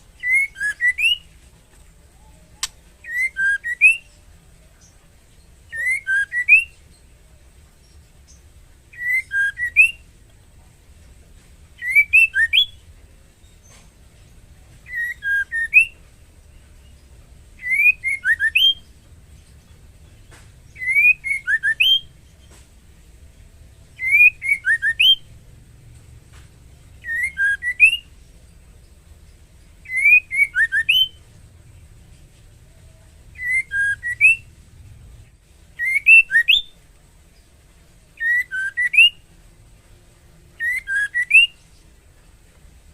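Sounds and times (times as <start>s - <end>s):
bird whistled call: 0.2s - 1.3s, 2.2s - 4.1s, 5.7s - 6.8s, 8.9s - 10.1s, 11.8s - 12.8s, 14.8s - 16.0s, 17.6s - 18.8s, 20.8s - 22.1s, 24.0s - 25.2s, 27.0s - 28.1s, 29.8s - 31.2s, 33.4s - 34.5s, 35.8s - 36.8s, 38.2s - 39.2s, 40.6s - 41.6s.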